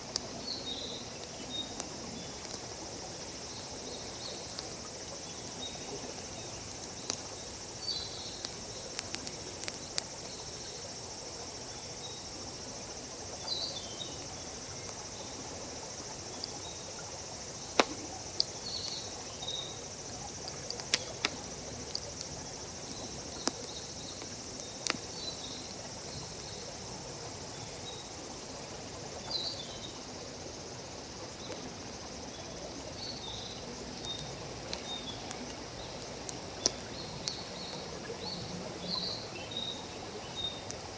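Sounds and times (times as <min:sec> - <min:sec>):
high insect drone: 0:00.0 - 0:40.9
campfire crackling and popping: 0:01.2 - 0:11.4, 0:14.1 - 0:26.1.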